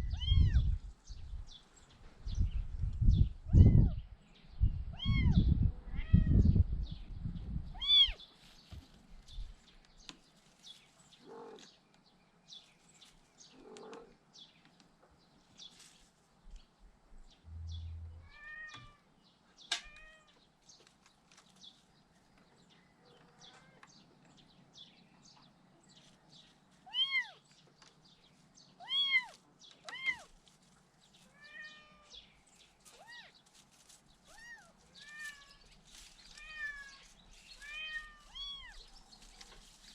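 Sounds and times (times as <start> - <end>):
low rumbling and knocking: 17.5 - 18.5.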